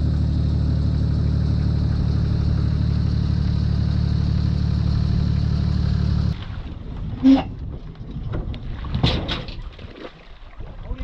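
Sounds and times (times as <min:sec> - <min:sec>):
engine humming steadily: 0:00.0 - 0:06.4.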